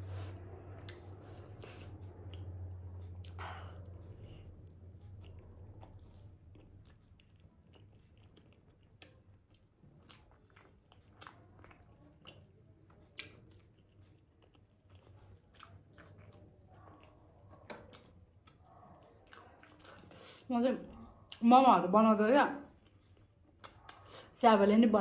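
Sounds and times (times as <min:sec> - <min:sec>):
chewing and biting food: 0:00.7 - 0:20.4.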